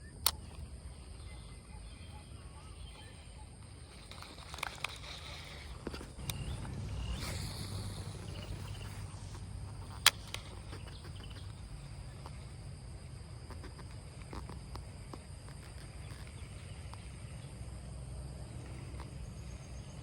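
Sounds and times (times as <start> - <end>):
high insect drone: 0.0 - 20.0
sharp click: 0.1 - 0.7, 3.9 - 12.4
faint ticks: 0.1 - 20.0.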